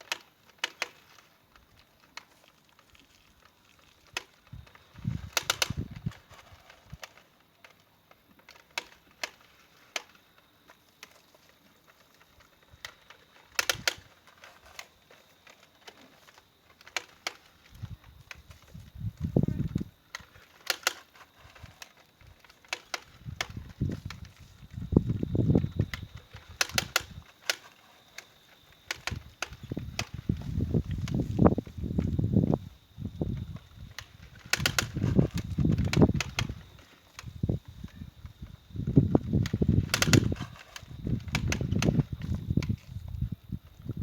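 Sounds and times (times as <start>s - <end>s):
sharp clicks and knocks: 39.2s - 42.8s.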